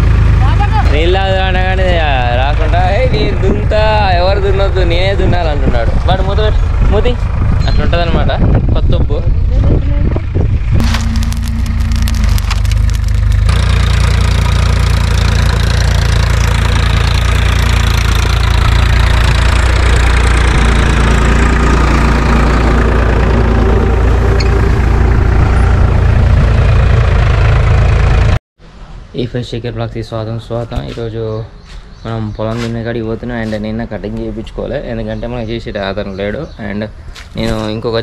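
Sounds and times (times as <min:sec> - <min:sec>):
tractor engine running: 0:00.0 - 0:28.4.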